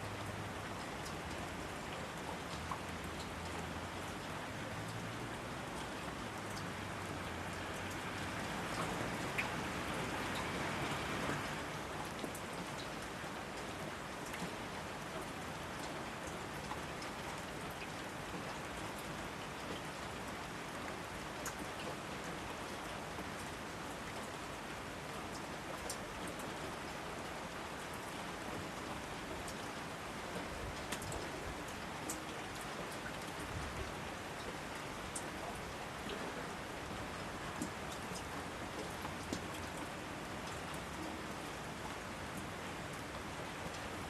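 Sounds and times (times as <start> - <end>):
rain falling on foliage: 0.0 - 44.0
raindrops ticking: 0.1 - 19.9, 30.2 - 33.5, 34.3 - 44.0.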